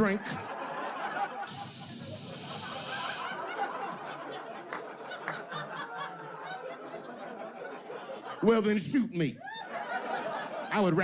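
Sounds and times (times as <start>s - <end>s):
audience laughing: 0.0s - 8.8s, 9.4s - 11.0s
short hiss: 1.5s - 3.4s.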